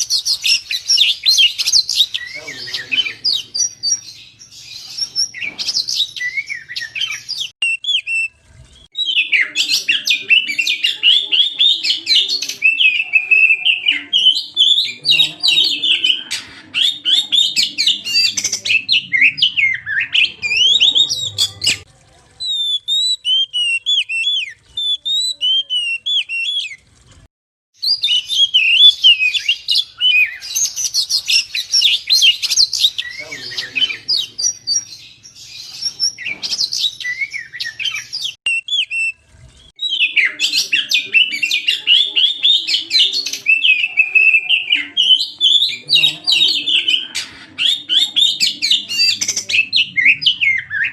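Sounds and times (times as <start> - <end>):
bird singing chirps and whistles: 0.0 - 21.8, 22.4 - 26.8, 27.8 - 39.2, 39.8 - 50.9.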